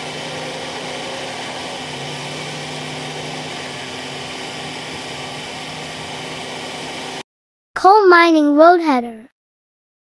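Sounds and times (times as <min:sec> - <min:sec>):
bulldozer diesel engine running: 0:00.0 - 0:07.2.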